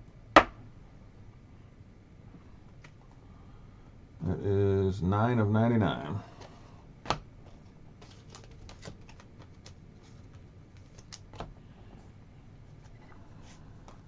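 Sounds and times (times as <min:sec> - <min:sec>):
trading cards clicking and tapping: 0:06.4 - 0:11.5.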